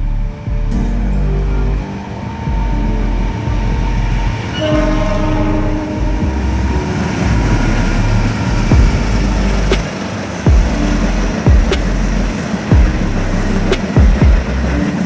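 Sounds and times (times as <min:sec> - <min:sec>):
train rumbling past: 0:00.0 - 0:15.0
train horn: 0:01.9 - 0:07.9.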